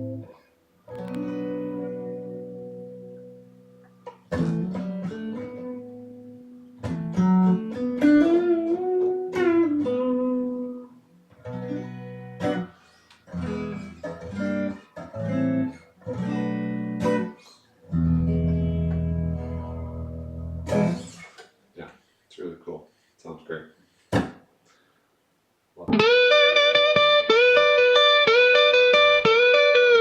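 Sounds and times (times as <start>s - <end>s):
clean electric guitar playing: 0.0s - 21.4s, 25.8s - 30.0s.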